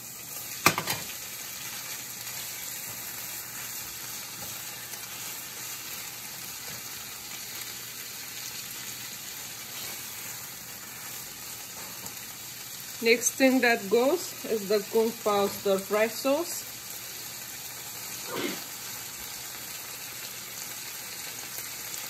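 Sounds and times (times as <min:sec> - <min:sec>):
food sizzling in hot oil: 0:00.0 - 0:22.0
spatula stirring: 0:00.3 - 0:12.4.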